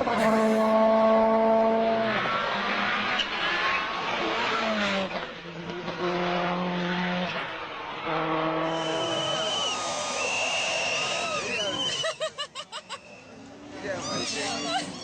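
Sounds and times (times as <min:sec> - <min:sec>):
rally car engine at high revs: 0:00.0 - 0:09.3.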